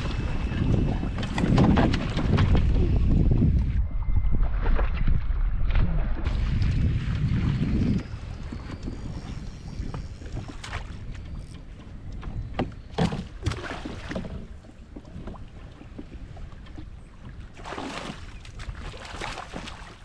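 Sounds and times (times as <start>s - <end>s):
wind on microphone: 0.0s - 20.0s
water slapping against kayak hull: 9.9s - 20.0s.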